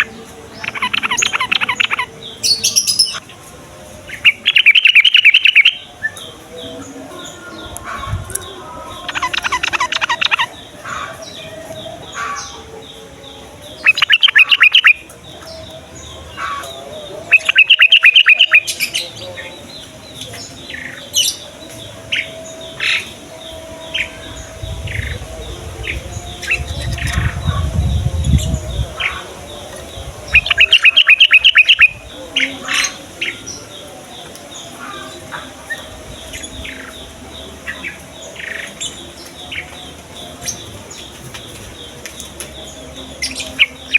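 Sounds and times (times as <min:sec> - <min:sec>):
birds singing bubbling phrases: 0:00.0 - 0:43.9
bird chirps: 0:04.0 - 0:43.9.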